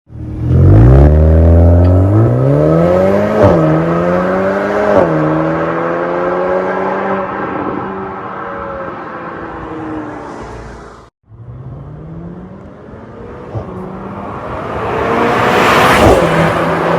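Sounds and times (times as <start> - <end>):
car engine accelerating hard: 11.4 - 16.9.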